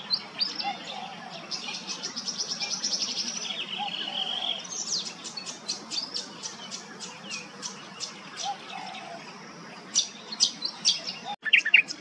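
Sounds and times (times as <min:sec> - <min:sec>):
bird singing trills: 0:00.0 - 0:09.3, 0:09.9 - 0:12.0.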